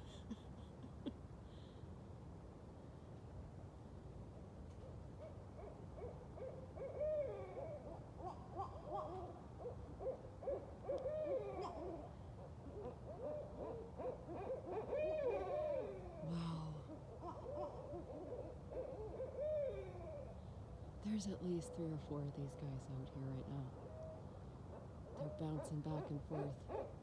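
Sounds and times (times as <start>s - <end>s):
owls hooting and calling: 6.0s - 20.4s.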